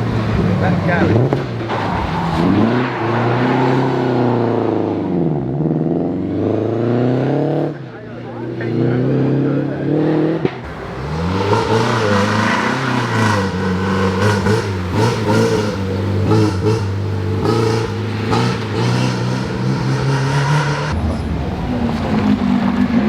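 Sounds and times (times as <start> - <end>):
rally car engine revving hard: 0.0 - 23.0.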